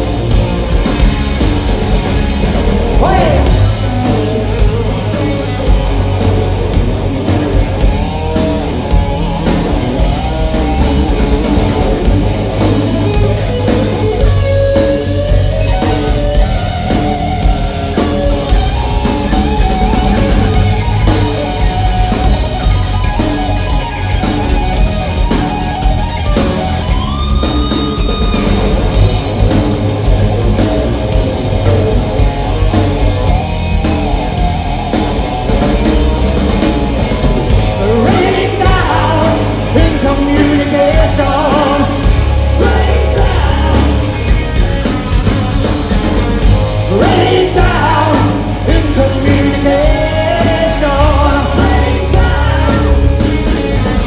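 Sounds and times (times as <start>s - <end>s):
hard rock band playing live: 0.0s - 54.0s
person singing: 2.9s - 4.2s, 37.7s - 44.2s, 46.9s - 54.0s.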